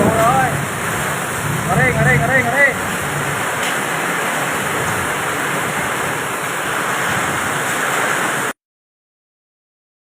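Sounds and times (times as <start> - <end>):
heavy rain and hail: 0.0 - 8.6
strong wind: 0.0 - 8.6.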